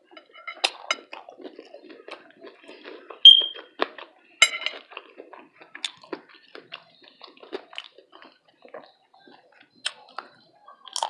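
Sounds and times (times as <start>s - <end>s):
crackly chewing: 0.0s - 11.0s
high squeak: 3.3s - 3.6s
mouth smacks: 5.3s - 11.0s.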